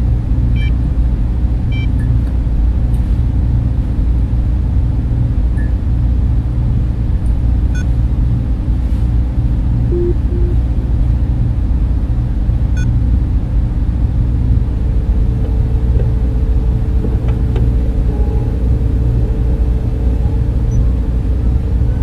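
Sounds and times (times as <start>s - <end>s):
server cooling fans humming: 0.0s - 22.0s
faint constant tone: 9.9s - 10.8s.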